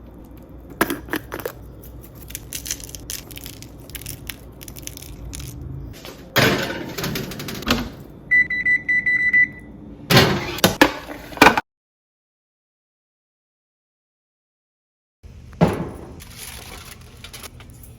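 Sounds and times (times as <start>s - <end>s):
high-pitched appliance beeps: 8.3s - 9.8s.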